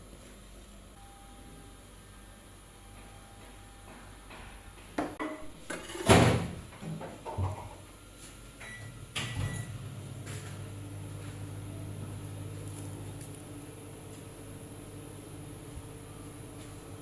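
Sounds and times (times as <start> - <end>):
objects knocking and clattering: 5.0 - 7.8.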